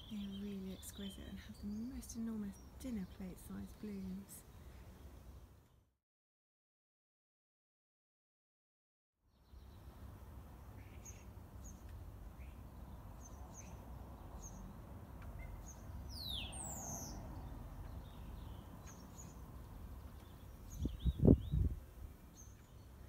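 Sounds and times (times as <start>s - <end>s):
small birds chirping: 0.0s - 5.8s, 9.3s - 23.0s.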